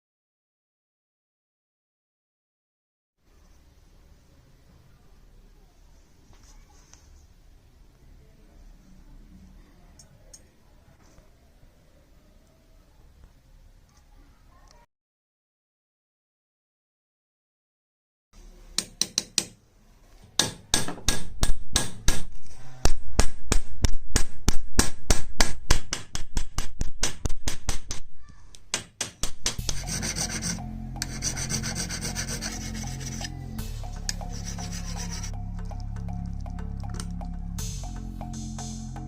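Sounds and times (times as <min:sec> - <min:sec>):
metal rubbing against a file: 0:29.6 - 0:35.4.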